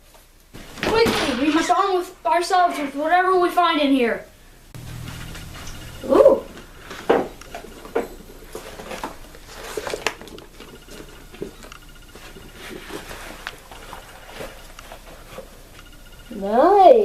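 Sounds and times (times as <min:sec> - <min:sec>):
objects being rummaged through: 0:06.8 - 0:15.6.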